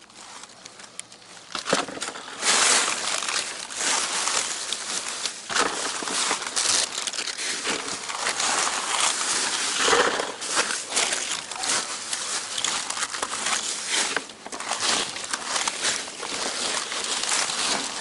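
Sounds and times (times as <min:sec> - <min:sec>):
plastic crinkling and rustling: 0:00.0 - 0:18.0
small knocks and scrapes: 0:00.3 - 0:18.0.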